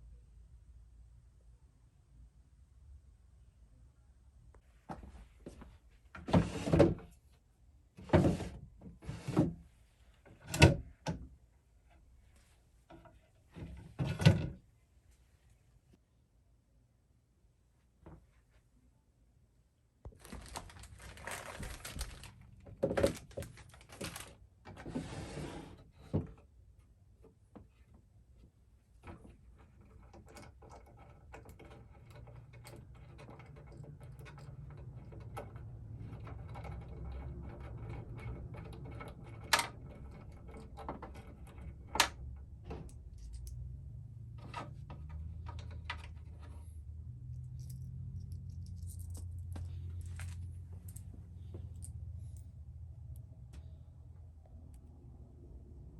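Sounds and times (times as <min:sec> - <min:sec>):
rustling: 0:20.1 - 0:24.4, 0:46.2 - 0:52.5.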